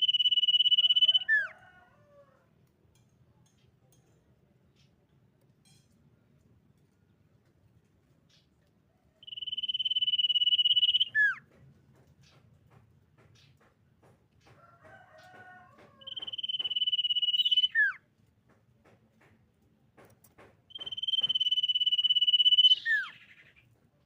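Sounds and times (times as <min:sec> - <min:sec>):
bird whistling: 0:00.0 - 0:01.5, 0:09.2 - 0:11.4, 0:16.0 - 0:18.0, 0:20.7 - 0:23.6
faint bird chips and twitter: 0:09.2 - 0:11.4, 0:16.0 - 0:18.0, 0:20.7 - 0:23.7.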